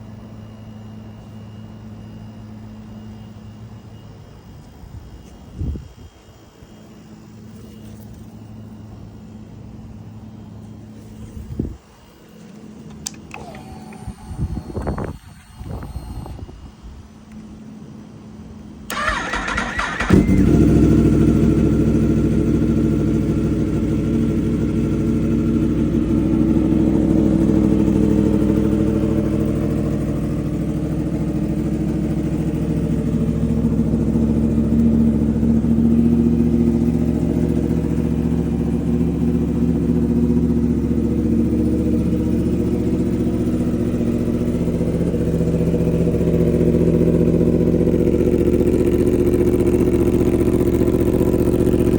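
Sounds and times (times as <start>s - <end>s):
motorcycle engine idling: 14.1s - 51.9s.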